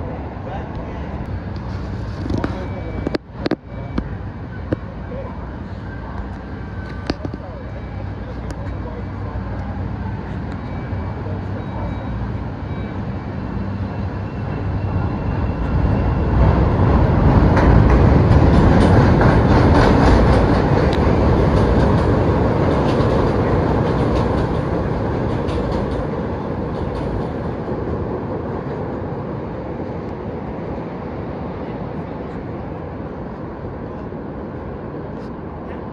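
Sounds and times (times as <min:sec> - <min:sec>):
train wheels clacking on rails: 0:06.2 - 0:28.9.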